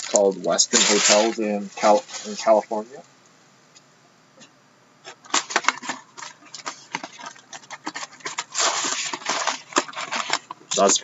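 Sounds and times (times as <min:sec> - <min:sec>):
trading cards and packaging crackling: 0:00.0 - 0:02.8, 0:05.2 - 0:11.0.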